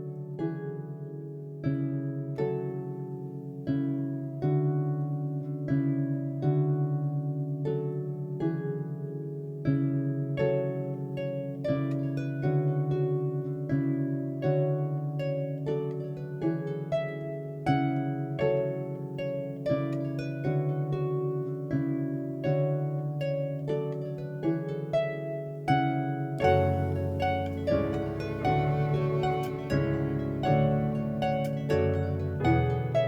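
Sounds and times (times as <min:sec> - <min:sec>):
harp playing plucked notes: 0:00.0 - 0:33.0.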